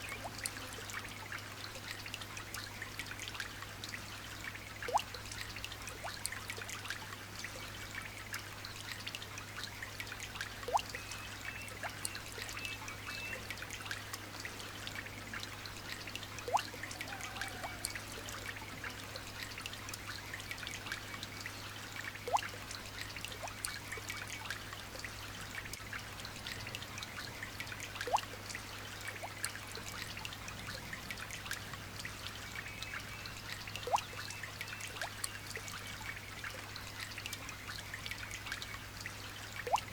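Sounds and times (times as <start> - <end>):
light rain pattering: 0.0 - 39.9
single water drop plinking: 22.2 - 22.6, 28.0 - 28.4, 33.8 - 35.4, 39.6 - 39.9.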